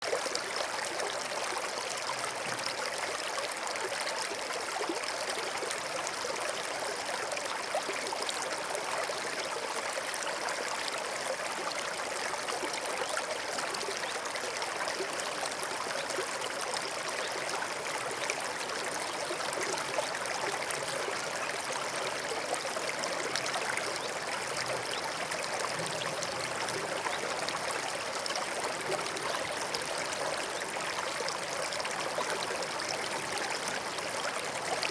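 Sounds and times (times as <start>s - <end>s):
stream running over stones: 0.0s - 34.9s.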